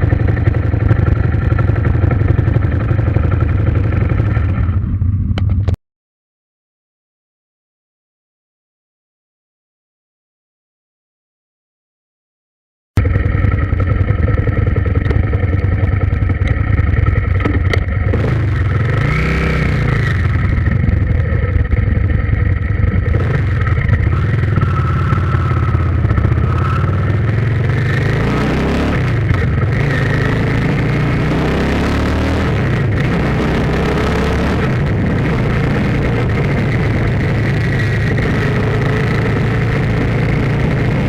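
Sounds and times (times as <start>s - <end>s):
vehicle engine revving: 13.0s - 41.0s.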